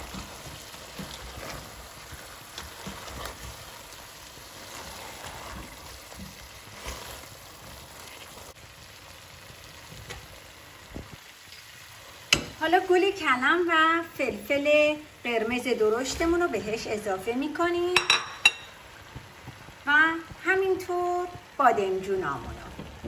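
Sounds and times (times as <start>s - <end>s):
spatula scraping and knocking pot: 0.0s - 3.6s
vegetables sizzling in pot: 0.0s - 23.0s.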